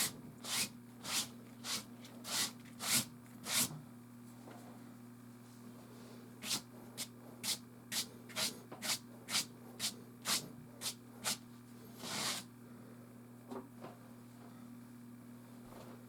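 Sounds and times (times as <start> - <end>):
pastel scratching on canvas: 7.4 - 11.4, 12.0 - 12.5.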